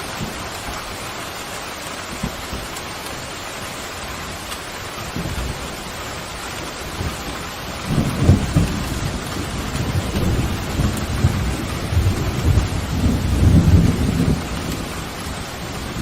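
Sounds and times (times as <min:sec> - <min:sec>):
pouring rain: 0:00.0 - 0:16.0
thunder rumbling: 0:05.0 - 0:16.0.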